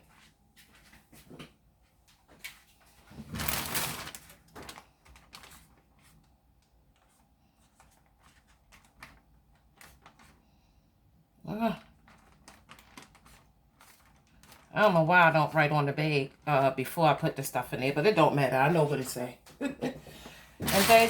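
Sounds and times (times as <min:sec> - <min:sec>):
plastic bag clicks and rustling: 0:03.0 - 0:10.5, 0:11.8 - 0:15.1, 0:20.6 - 0:21.0.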